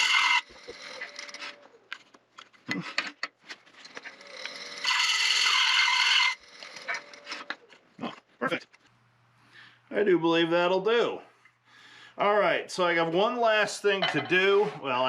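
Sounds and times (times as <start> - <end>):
tool cutting wood: 0.0 - 1.8, 3.8 - 7.7.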